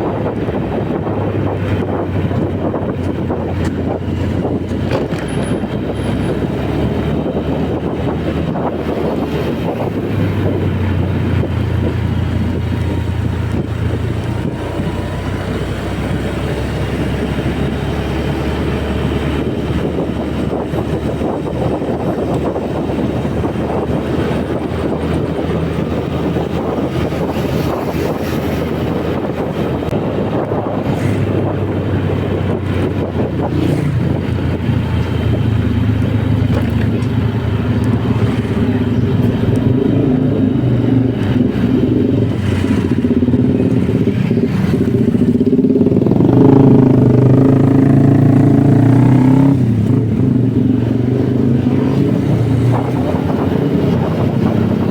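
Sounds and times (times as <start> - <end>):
wind and road noise: 0.0 - 54.9.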